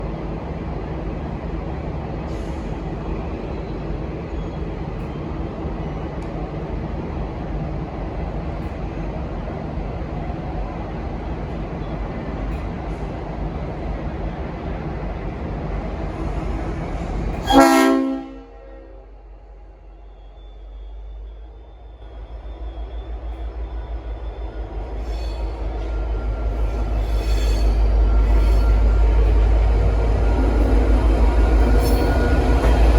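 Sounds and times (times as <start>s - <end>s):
diesel locomotive rumbling: 0.0s - 32.9s.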